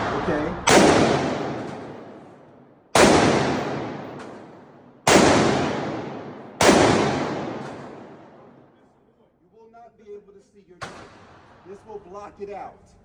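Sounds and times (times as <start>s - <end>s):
gunshots with reverberant echo: 0.0s - 8.9s, 10.8s - 12.0s.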